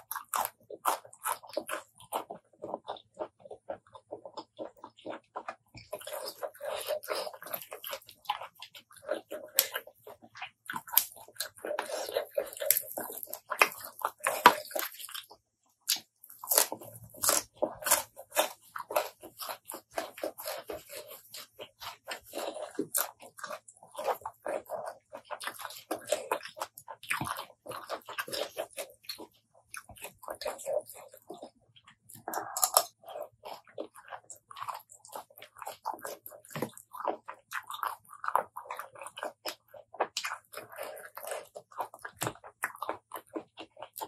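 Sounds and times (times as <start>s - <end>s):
person chewing crunchy greens: 0.0s - 44.0s.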